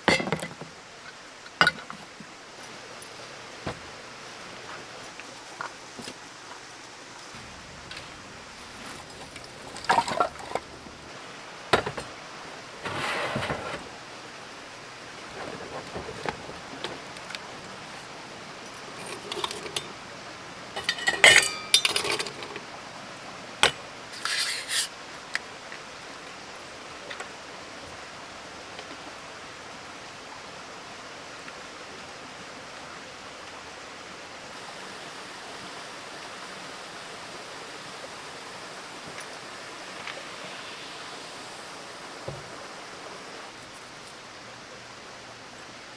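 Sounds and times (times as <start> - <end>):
steady background hiss: 0.0 - 45.9
metal gear and dishes clattering: 7.2 - 10.9, 18.7 - 20.0, 20.8 - 22.7.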